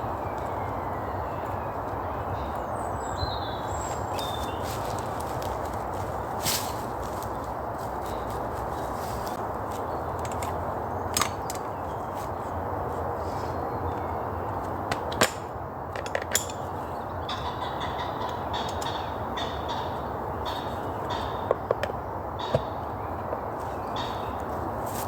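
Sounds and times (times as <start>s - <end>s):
wind through trees: 0.0s - 25.0s
sharp clicks and knocks: 21.1s - 22.7s.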